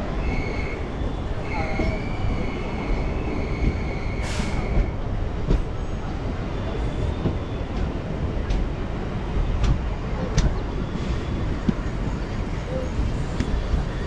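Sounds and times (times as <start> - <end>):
train wheels rumbling on rail: 0.0 - 14.0
rail joint clicks: 3.4 - 6.0, 7.1 - 14.0.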